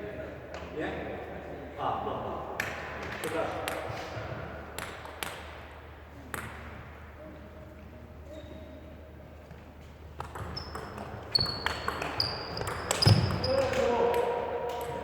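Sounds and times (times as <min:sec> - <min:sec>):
table tennis ball bouncing: 0:06.3 - 0:06.8, 0:10.2 - 0:15.0.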